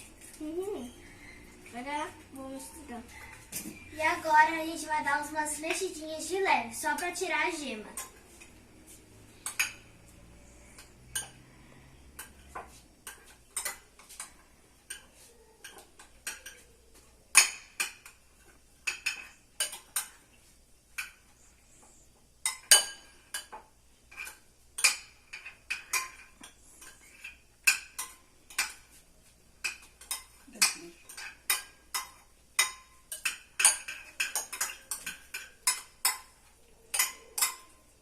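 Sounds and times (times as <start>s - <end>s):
spoon stirring and mashing in dish: 0.0s - 38.0s
spoon clinking against dish: 10.7s - 16.7s, 22.4s - 28.9s, 29.6s - 37.9s.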